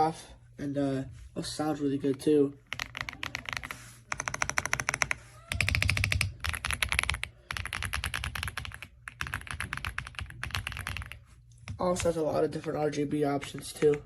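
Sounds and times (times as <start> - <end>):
mechanical keyboard typing: 2.1 - 11.2, 13.4 - 14.0.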